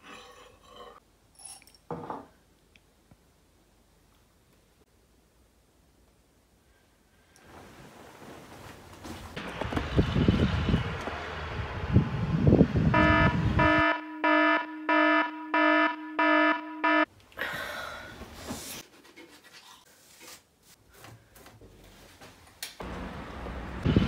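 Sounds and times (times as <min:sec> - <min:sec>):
wind buffeting microphone: 0:09.4 - 0:13.6
smartphone alarm beeping: 0:13.0 - 0:17.1.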